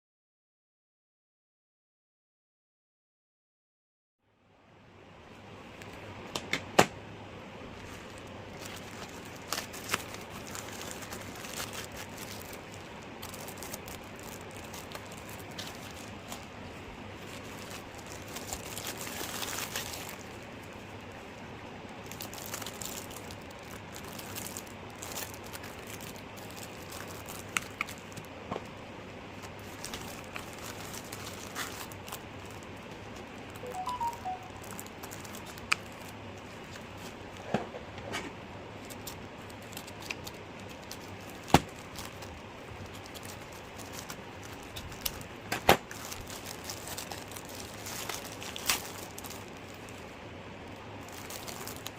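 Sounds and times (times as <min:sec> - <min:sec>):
packaging crinkling and tearing: 0:07.7 - 0:28.3, 0:29.3 - 0:37.4, 0:38.7 - 0:51.9.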